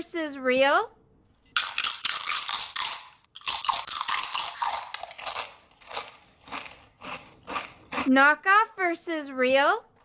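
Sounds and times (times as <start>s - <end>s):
person crunching a cookie: 1.5s - 8.1s.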